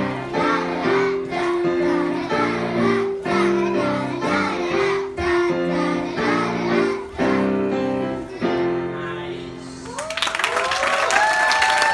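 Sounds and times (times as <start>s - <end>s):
children singing: 0.0s - 9.0s
piano accompaniment: 0.0s - 10.0s
applause: 9.9s - 11.9s.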